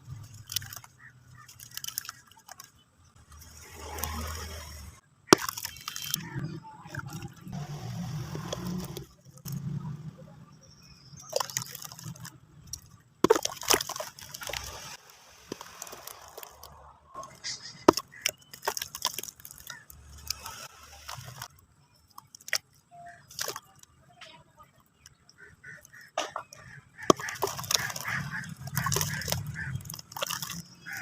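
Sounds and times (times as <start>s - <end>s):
water sloshing and dripping: 0.0s - 9.6s, 10.8s - 31.0s
cement chunks crunching and cracking: 0.1s - 4.6s, 5.2s - 9.6s, 10.8s - 31.0s.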